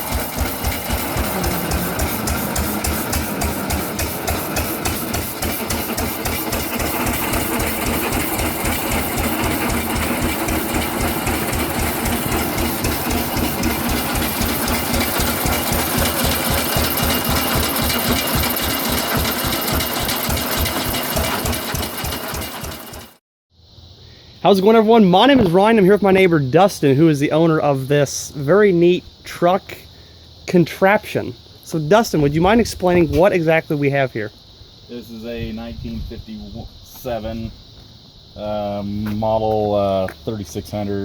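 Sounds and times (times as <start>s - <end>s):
engine chugging: 0.0s - 23.2s.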